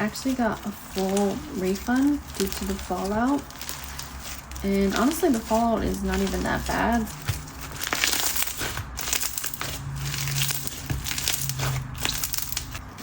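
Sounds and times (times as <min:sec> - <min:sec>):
bead slime crunching and clicking: 0:07.1 - 0:12.8.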